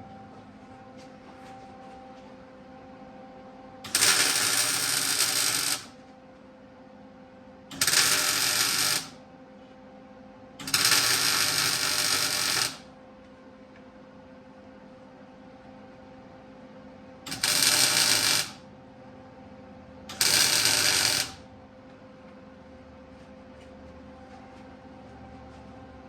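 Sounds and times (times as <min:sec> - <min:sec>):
steady hum: 0:00.0 - 0:26.0
welding arc crackling: 0:03.9 - 0:05.9, 0:07.7 - 0:09.2, 0:10.6 - 0:12.8, 0:17.3 - 0:18.6, 0:20.1 - 0:21.4.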